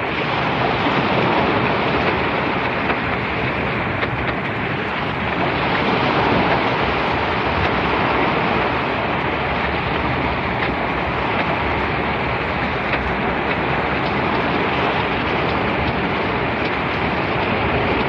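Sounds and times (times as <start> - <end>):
sea surf: 0.0 - 18.0
wind: 0.0 - 18.0.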